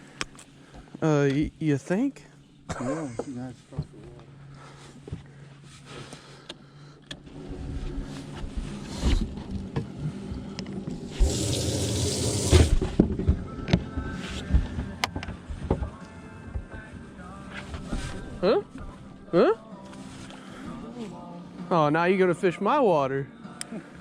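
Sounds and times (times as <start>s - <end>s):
water rushing and splashing: 11.1s - 12.8s.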